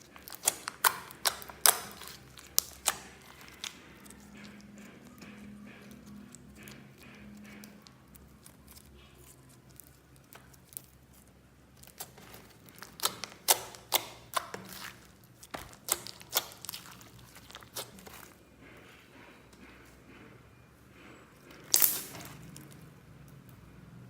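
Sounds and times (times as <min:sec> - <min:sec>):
sharp wet clicks and pops: 0:00.0 - 0:08.9, 0:11.8 - 0:18.3, 0:21.7 - 0:22.8
slime squeezed by hand: 0:11.9 - 0:18.3, 0:21.6 - 0:22.7.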